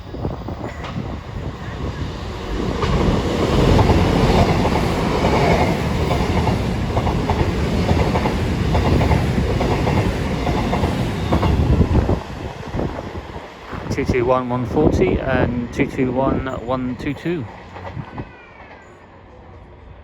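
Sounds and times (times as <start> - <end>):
diesel train rumbling past: 0.0 - 20.0
rail-joint clicks: 0.6 - 1.2, 2.7 - 12.2, 14.9 - 18.8.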